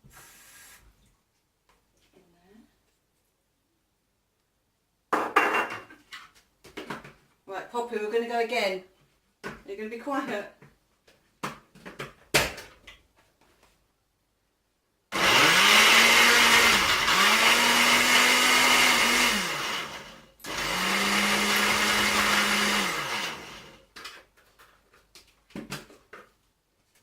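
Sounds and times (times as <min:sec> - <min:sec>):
blender motor running: 0:15.1 - 0:23.8.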